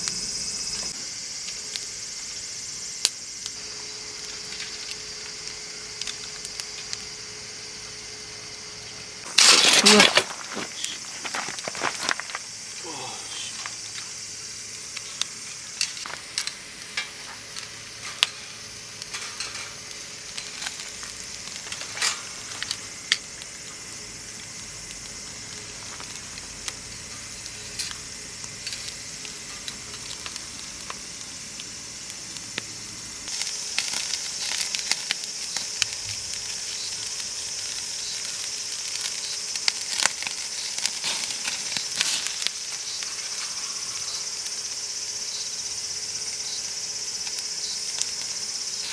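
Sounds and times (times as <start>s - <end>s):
crickets chirring: 0.0s - 48.9s
food sizzling in a pan: 0.0s - 48.9s
fat spattering pops: 9.3s - 12.4s.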